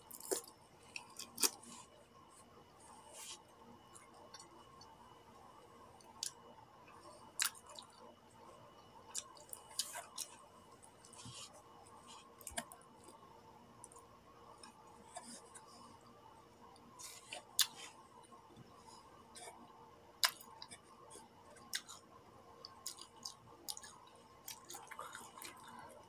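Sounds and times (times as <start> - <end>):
person chewing: 0.0 - 1.9, 7.4 - 8.0, 9.1 - 10.4, 17.0 - 18.0, 21.6 - 26.0.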